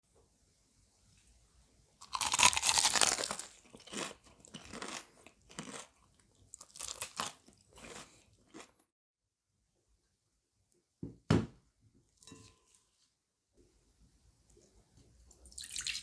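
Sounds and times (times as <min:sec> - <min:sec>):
crunchy bite into fried chicken: 0:02.0 - 0:08.7
crunchy chewing: 0:02.0 - 0:08.8.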